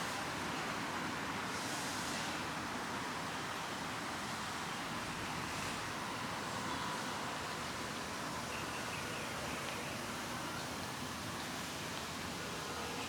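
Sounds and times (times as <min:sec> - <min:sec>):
rushing outdoor background noise: 0:00.0 - 0:13.0.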